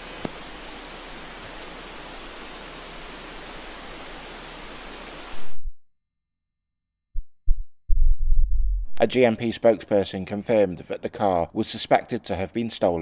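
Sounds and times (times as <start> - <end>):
radio static hiss: 0.0 - 5.7.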